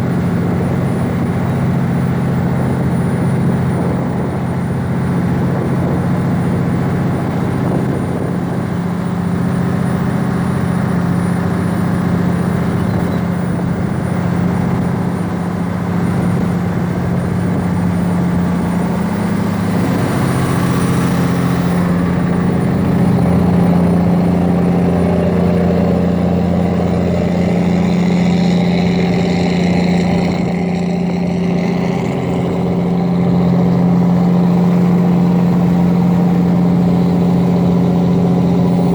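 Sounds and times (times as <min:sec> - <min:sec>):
steady engine drone: 0:00.0 - 0:38.9.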